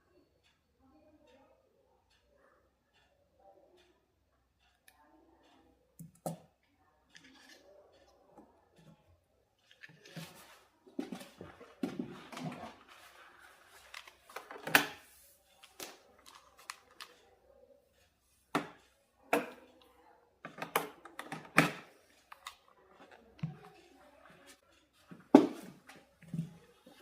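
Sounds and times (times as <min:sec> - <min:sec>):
tools and plastic parts handled: 0:07.1 - 0:09.0, 0:09.6 - 0:17.4, 0:20.4 - 0:27.0.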